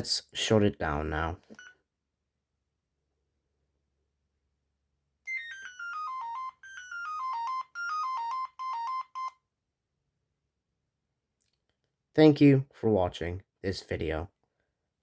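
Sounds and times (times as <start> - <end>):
mobile phone electronic jingle: 5.3 - 9.4.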